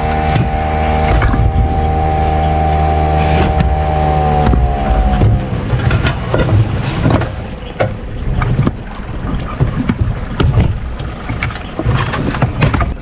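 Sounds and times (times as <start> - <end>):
boat rumble: 0.0 - 13.0
wind buffeting microphone: 0.0 - 13.0
sharp knocks: 3.3 - 8.8.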